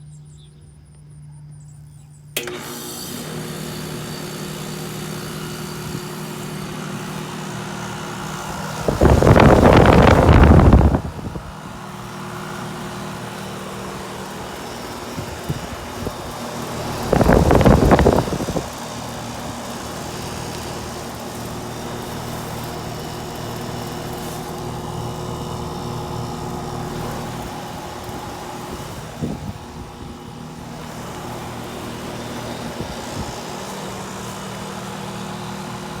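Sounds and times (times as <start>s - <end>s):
air conditioner compressor hum: 0.0s - 36.0s
condenser fan whoosh: 2.4s - 36.0s
loud burst of noise: 8.4s - 11.7s.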